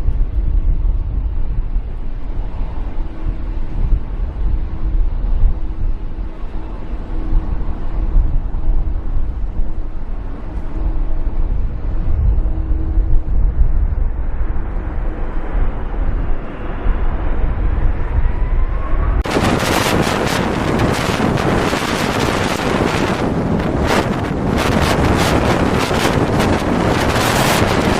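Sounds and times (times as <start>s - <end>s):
faint whine: 0.0s - 27.9s
heavy low rumble: 0.0s - 27.9s
wind buffeting microphone: 0.0s - 27.9s.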